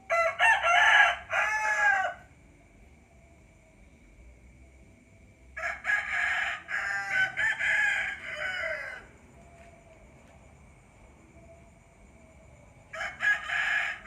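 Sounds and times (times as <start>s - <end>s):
rooster crowing: 0.0s - 2.3s, 5.6s - 9.8s, 12.9s - 14.0s.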